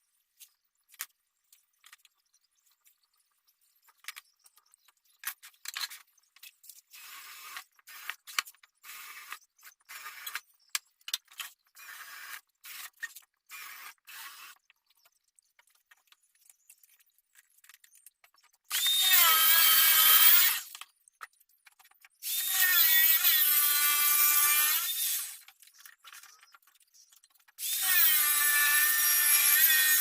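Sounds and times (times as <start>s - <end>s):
small scattered clicks and taps: 0.4s - 6.9s, 7.5s - 11.8s, 14.6s - 18.9s, 20.7s - 22.2s.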